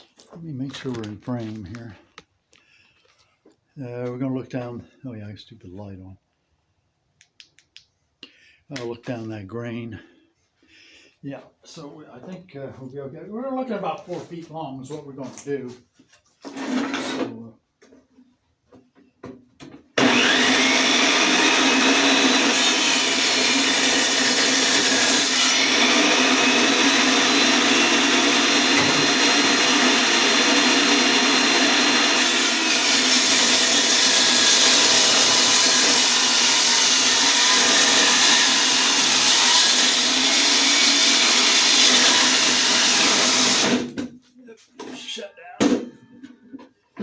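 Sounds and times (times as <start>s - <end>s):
electric saw ripping wood: 20.0s - 44.0s.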